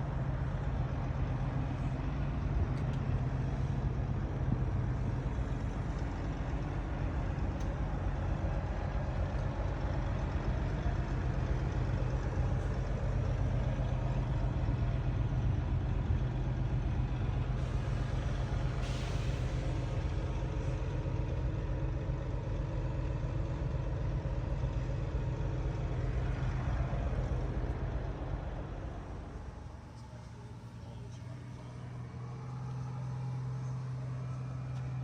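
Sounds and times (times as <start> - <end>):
diesel truck engine running: 0.0 - 35.0.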